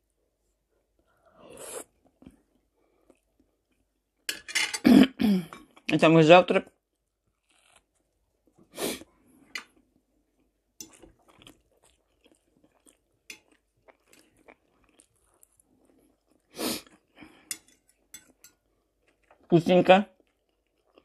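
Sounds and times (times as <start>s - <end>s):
chewing and mouth sounds: 9.6s - 19.5s, 20.1s - 21.0s.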